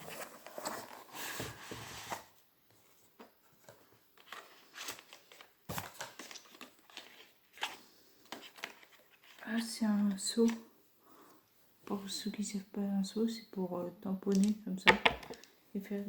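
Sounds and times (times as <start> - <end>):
packaging rustling and crinkling: 3.0 - 9.6.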